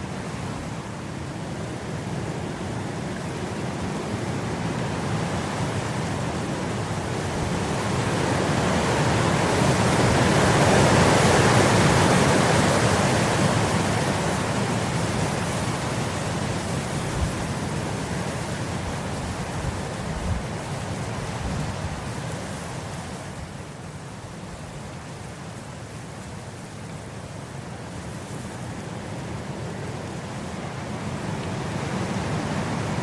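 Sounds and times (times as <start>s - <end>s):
wind blowing across grass: 0.0s - 33.0s.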